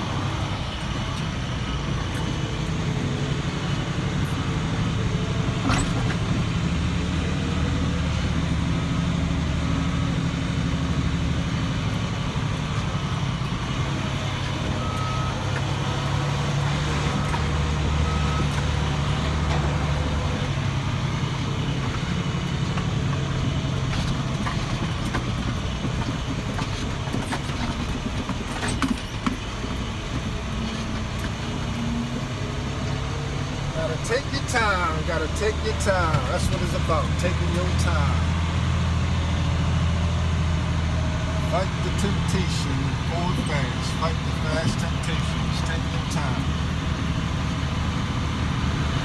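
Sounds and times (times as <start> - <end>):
diesel truck engine running: 0.0 - 49.0
backup alarm beeping: 13.1 - 20.4.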